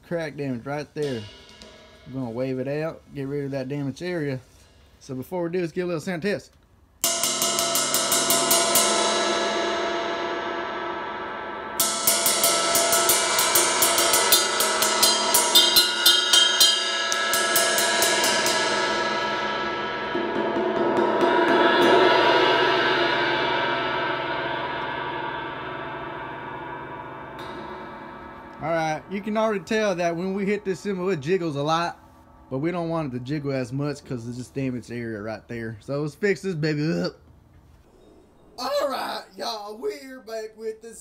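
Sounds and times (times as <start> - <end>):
ride cymbal struck with stick: 0.0 - 5.0, 7.0 - 34.2.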